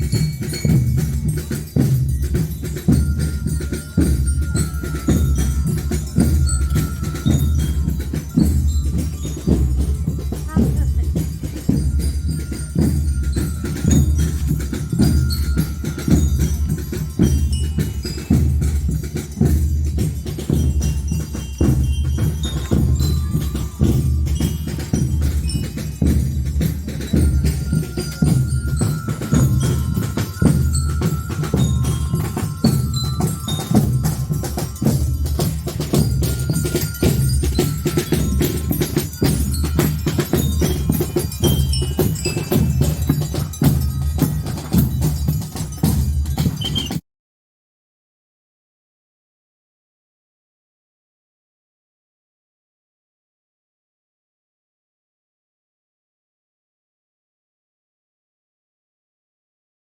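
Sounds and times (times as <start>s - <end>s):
bell lyres playing melody: 0.0s - 47.0s
marching drums: 0.0s - 47.0s.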